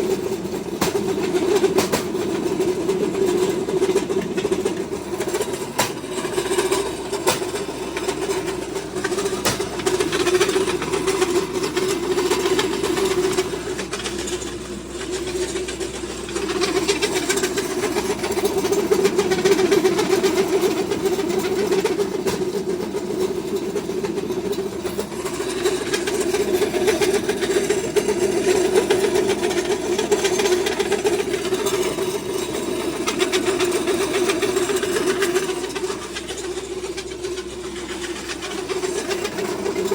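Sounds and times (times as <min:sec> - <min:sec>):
feed mill mechanical drone: 0:00.0 - 0:39.9.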